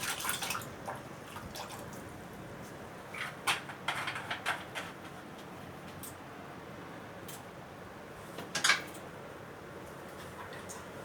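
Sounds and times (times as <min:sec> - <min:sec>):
water splashing and sloshing: 0:00.0 - 0:02.3
faint steady background noise: 0:00.0 - 0:11.0.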